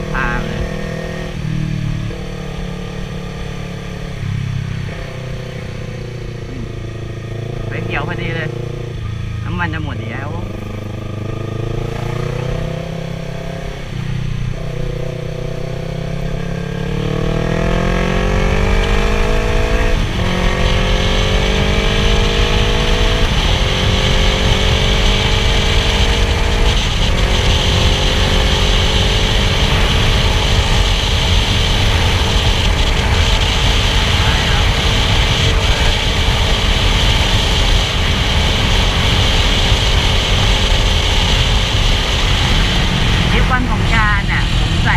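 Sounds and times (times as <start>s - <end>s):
motorcycle engine accelerating: 0.0s - 44.9s
wind rush: 15.8s - 44.9s.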